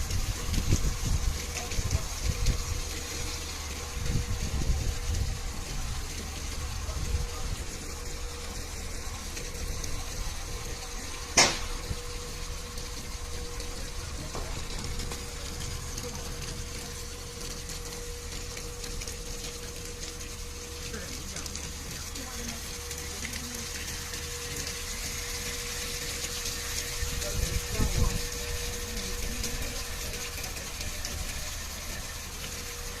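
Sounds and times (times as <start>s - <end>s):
fire truck engine running: 0.0s - 33.0s.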